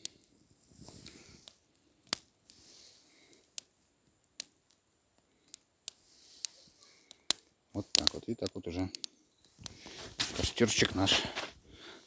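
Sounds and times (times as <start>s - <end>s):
flames hissing: 0.0s - 4.6s, 5.2s - 12.0s
campfire crackling pops: 0.0s - 11.9s.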